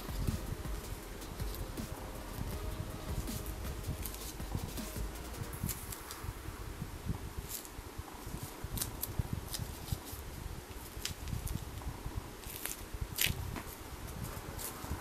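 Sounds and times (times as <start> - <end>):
small clicks and crackles: 7.5 - 14.8.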